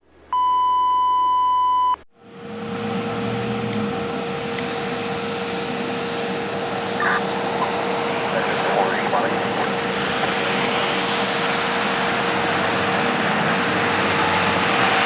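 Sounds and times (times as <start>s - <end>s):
constant hum: 2.2s - 13.9s
electronic beep tone: 7.0s - 7.8s.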